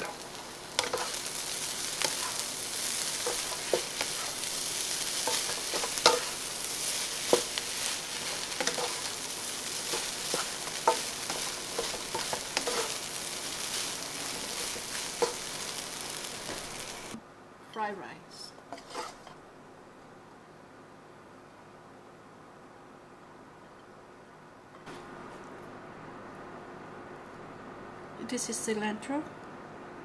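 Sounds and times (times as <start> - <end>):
rice sizzling in a wok: 0.0 - 17.2, 18.7 - 19.4
spatula scraping and tapping pan: 0.8 - 1.3, 1.9 - 4.5, 5.2 - 9.2, 9.8 - 13.0, 14.4 - 15.7, 18.7 - 19.4.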